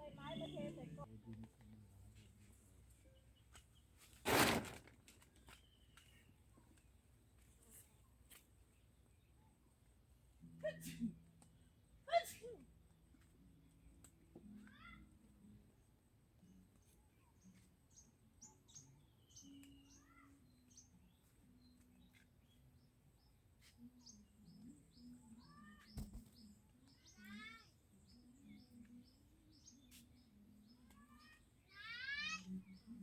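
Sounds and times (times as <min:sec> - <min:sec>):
small birds chirping: 0:16.4 - 0:33.0.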